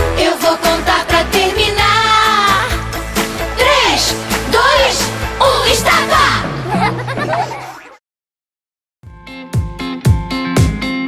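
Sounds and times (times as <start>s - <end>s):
upbeat children's song: 0.0s - 6.6s.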